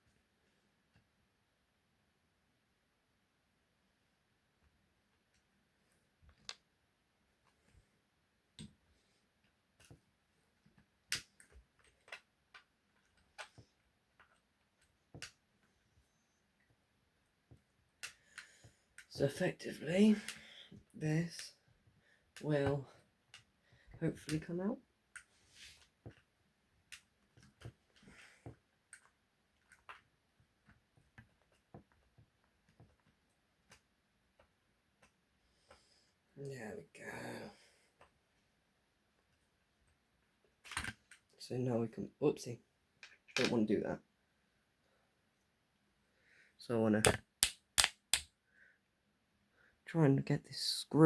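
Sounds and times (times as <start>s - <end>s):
faint clicks and knocks of parts: 4.6s - 36.4s, 37.9s - 41.4s, 42.9s - 43.7s
small tools tapping plastic: 47.0s - 48.3s.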